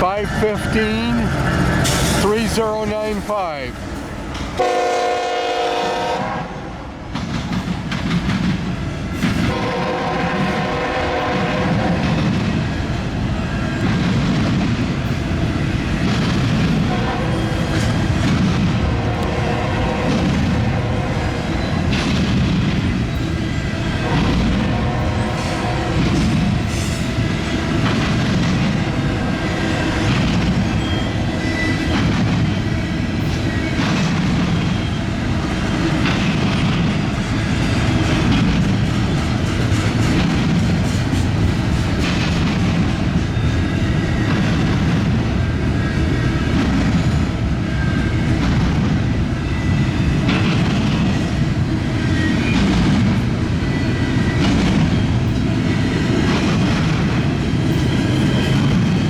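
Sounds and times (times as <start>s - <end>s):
freight train cars rumbling: 0.0s - 59.0s
faint high wheel squeal: 30.8s - 31.9s.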